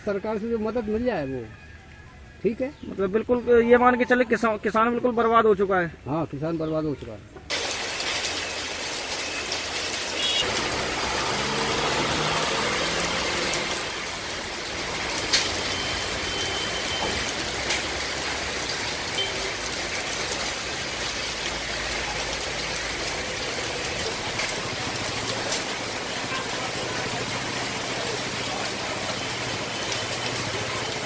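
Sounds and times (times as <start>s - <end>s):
steady rain falling: 7.5s - 31.0s.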